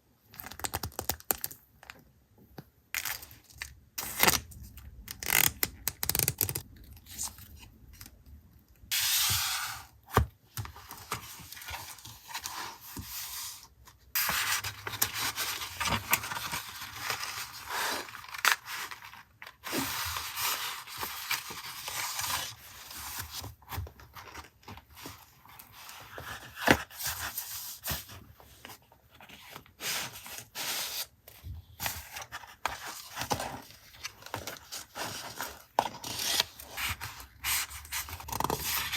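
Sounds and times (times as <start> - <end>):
paper rustling and scraping: 10.7 - 31.1, 31.8 - 38.9.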